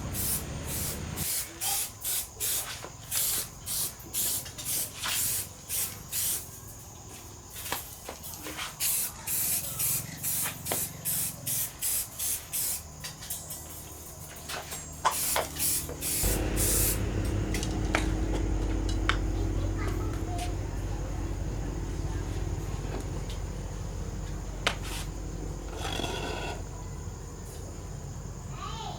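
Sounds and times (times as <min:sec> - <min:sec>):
short hissing spray bursts: 0:00.0 - 0:06.5, 0:08.6 - 0:12.9, 0:15.0 - 0:17.2
low hum: 0:16.2 - 0:25.8.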